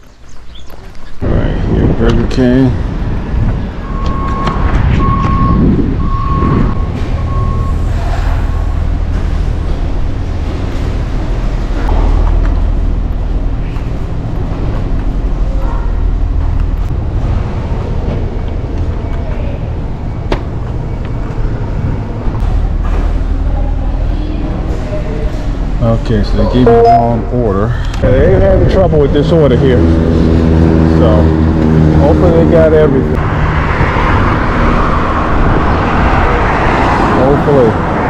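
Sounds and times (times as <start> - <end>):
traffic noise: 0.0 - 38.0
wind rumble: 1.1 - 38.0
high beep: 3.8 - 7.9, 26.5 - 27.3.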